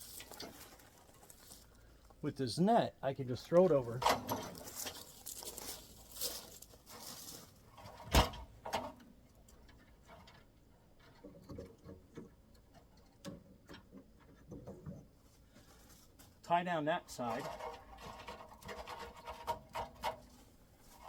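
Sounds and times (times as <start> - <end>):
cargo net rustling: 3.6 - 7.9.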